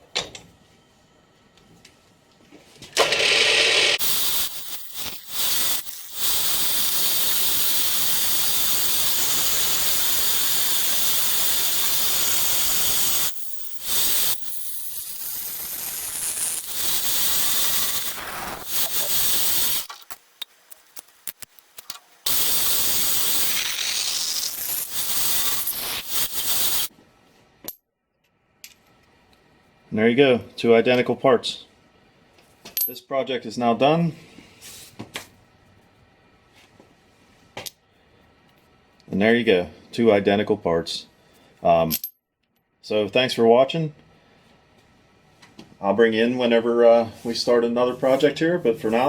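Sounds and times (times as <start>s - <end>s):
milling machine cutting metal: 3.0s - 14.4s.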